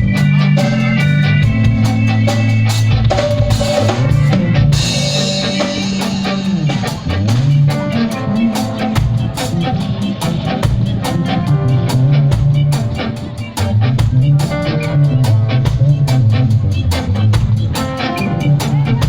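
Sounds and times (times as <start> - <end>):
live band jamming: 0.0 - 19.0
low sliding bass notes: 0.0 - 19.0.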